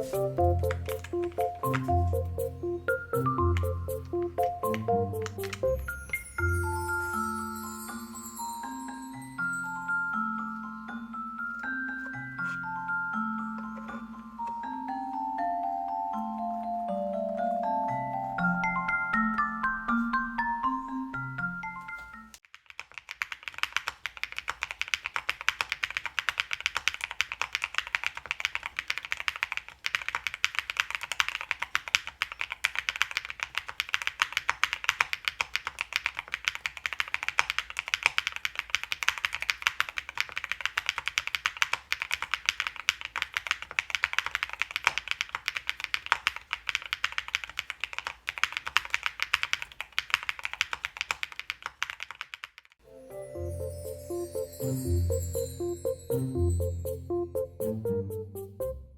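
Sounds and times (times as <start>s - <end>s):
mechanical keyboard typing: 0.0s - 6.2s, 22.4s - 52.8s.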